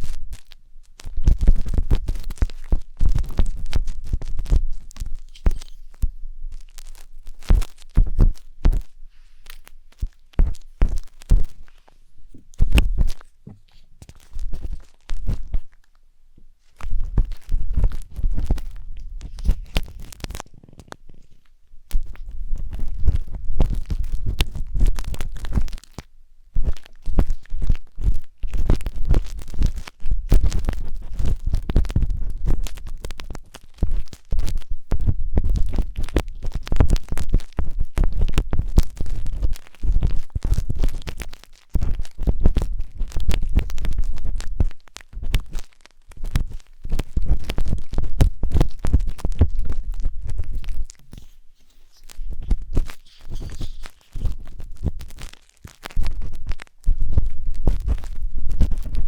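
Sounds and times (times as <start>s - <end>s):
wooden skewer scraping microphone: 1.2s - 15.8s, 16.8s - 26.0s, 46.2s - 59.0s.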